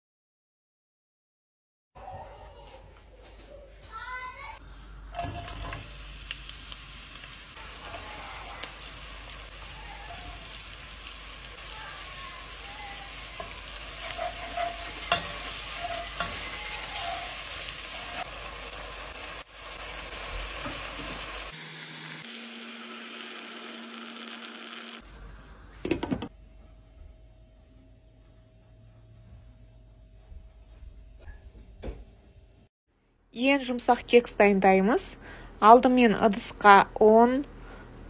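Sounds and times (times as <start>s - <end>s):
onion and vegetables sizzling: 4.6s - 25.9s
spatula stirring and knocking pan: 12.2s - 18.3s.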